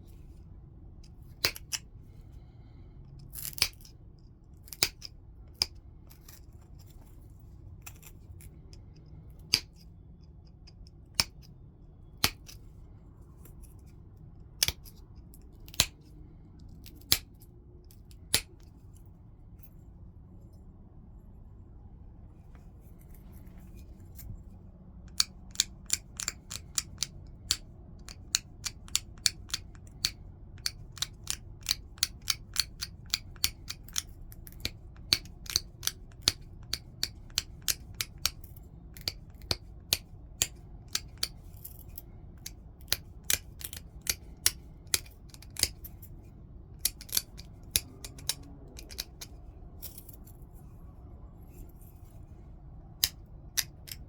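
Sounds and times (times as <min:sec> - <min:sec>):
tool clicking on stone: 0:01.4 - 0:01.8, 0:04.6 - 0:06.4, 0:12.2 - 0:12.6, 0:14.6 - 0:15.0, 0:25.0 - 0:46.0, 0:46.8 - 0:50.1, 0:53.0 - 0:54.0.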